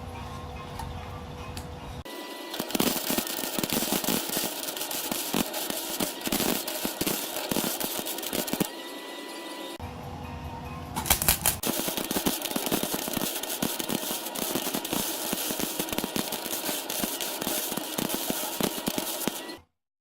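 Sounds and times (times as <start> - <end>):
welding arc crackling: 2.4 - 8.8, 11.1 - 19.6.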